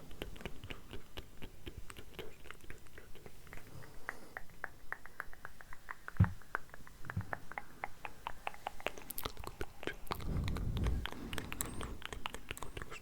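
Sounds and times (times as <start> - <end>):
wet mouth clicks and smacks: 0.0 - 13.0
low breathy rumble: 9.9 - 12.1.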